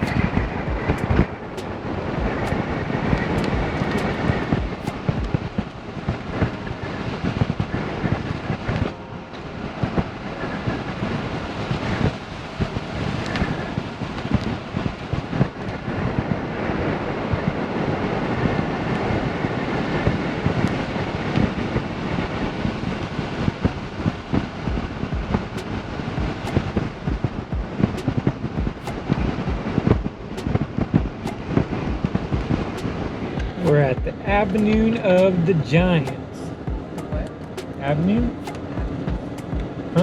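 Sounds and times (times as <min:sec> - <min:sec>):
sharp ticks: 0:00.0 - 0:02.6, 0:24.7 - 0:34.9, 0:36.0 - 0:40.0.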